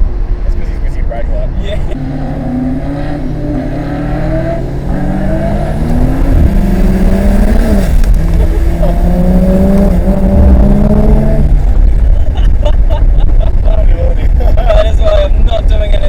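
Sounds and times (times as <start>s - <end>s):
car engine accelerating hard: 0.1s - 13.7s.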